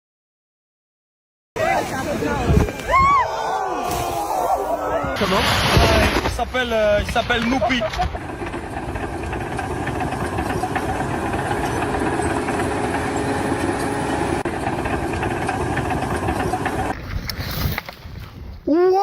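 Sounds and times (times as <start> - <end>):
engine running: 4.2 - 18.5.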